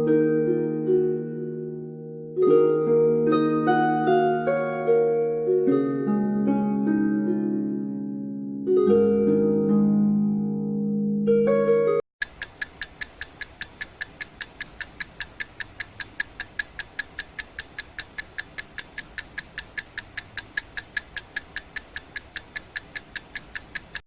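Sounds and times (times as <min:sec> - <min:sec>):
clock ticking: 0:12.2 - 0:24.0.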